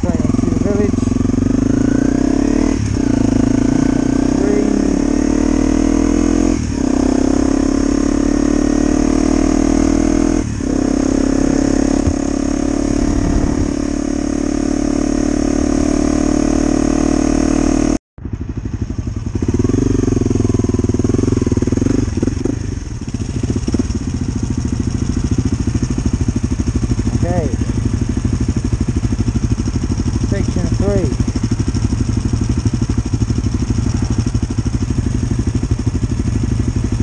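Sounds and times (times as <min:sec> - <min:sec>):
motorcycle engine shifting up: 0:00.0 - 0:15.6.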